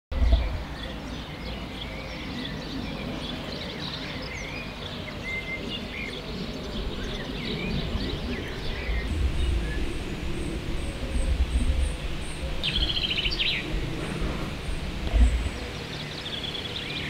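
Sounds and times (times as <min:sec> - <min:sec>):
small birds chirping and trilling: 0:00.1 - 0:17.0
low steady rumble: 0:07.8 - 0:17.0.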